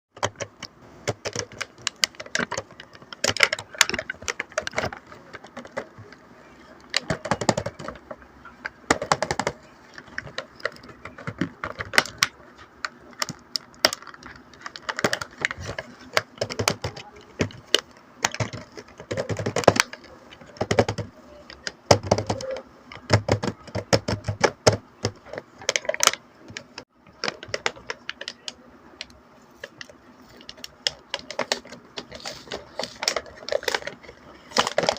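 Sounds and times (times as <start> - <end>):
plastic pieces clicking: 0.2 - 8.2, 8.8 - 34.9
packaging rustling: 29.6 - 34.9.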